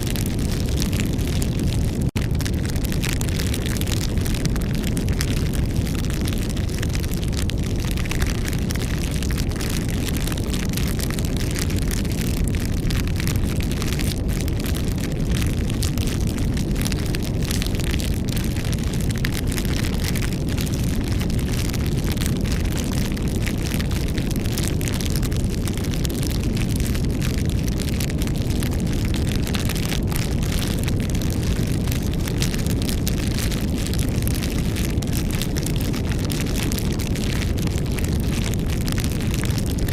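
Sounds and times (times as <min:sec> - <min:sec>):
campfire crackling and popping: 0:00.0 - 0:39.9
low fire rumble: 0:00.0 - 0:39.9.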